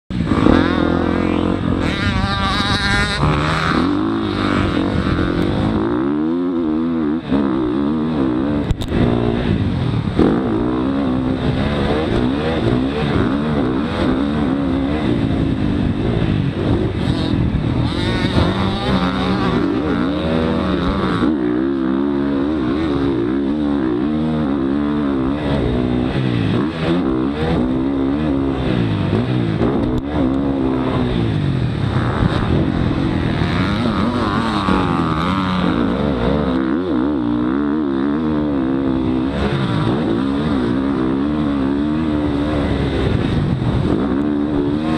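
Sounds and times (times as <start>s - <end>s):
dirt bike engine revving: 0.1s - 44.9s.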